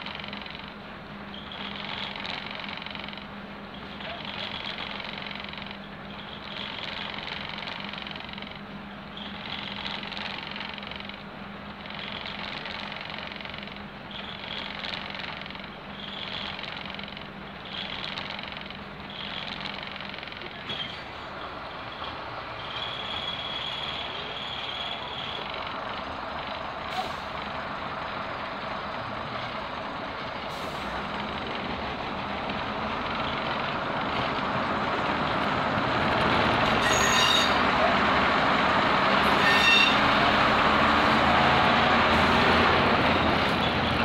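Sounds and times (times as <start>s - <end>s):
train wheels and engine rumbling: 0.0s - 44.0s
high metallic squeals: 20.7s - 25.6s, 36.6s - 37.7s, 39.1s - 40.4s.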